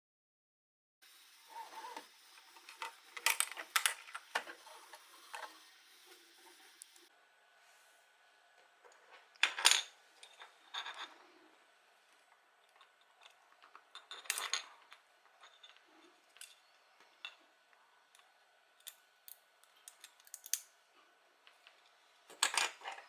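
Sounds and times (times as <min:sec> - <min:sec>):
plastic parts clattering: 0:02.6 - 0:05.6, 0:12.7 - 0:16.6, 0:22.3 - 0:23.0
small plastic parts clicking: 0:18.1 - 0:20.7.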